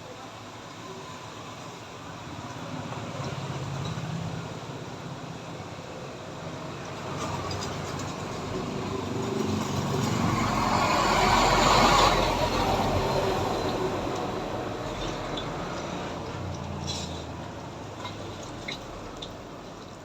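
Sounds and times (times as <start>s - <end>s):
vehicle passing by: 7.2s - 17.4s.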